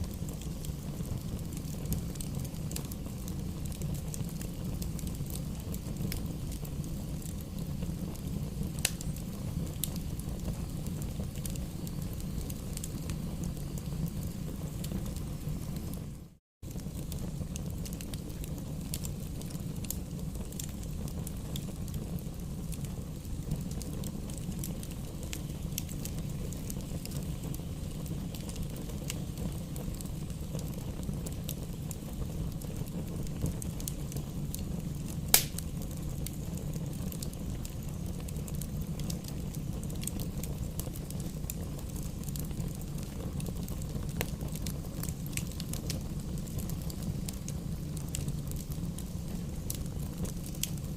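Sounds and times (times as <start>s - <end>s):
campfire crackling: 0.0s - 50.9s
low fire rumble: 0.0s - 50.9s
loud fire pop: 35.3s - 35.7s.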